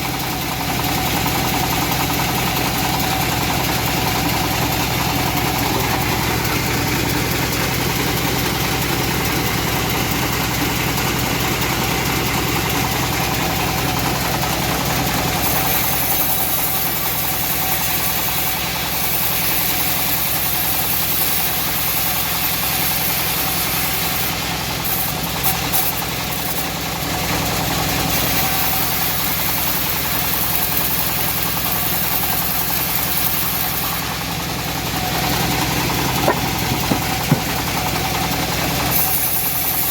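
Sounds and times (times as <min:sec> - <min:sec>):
bandsaw mill droning: 0:00.0 - 0:39.9.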